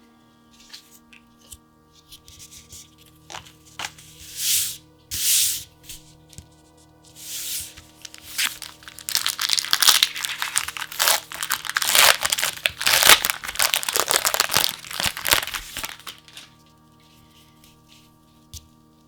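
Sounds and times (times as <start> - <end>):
plastic packaging crinkling: 7.7 - 16.7.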